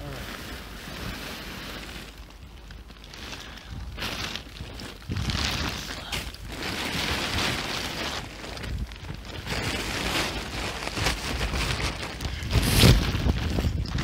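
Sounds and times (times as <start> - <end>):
tarp rustling and crinkling: 0.0 - 14.0.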